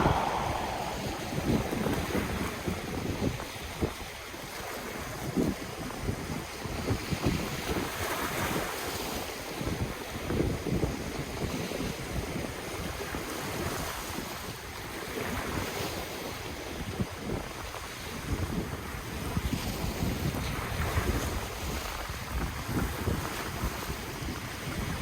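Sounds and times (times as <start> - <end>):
ocean waves breaking on shore: 0.0 - 2.5
wind buffeting microphone: 0.0 - 3.3.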